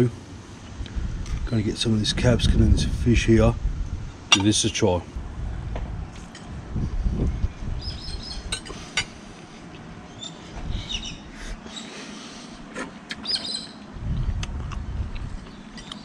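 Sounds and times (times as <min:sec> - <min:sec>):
low rumbles: 0:00.0 - 0:11.7, 0:13.9 - 0:16.0
small birds chirping: 0:07.4 - 0:16.0.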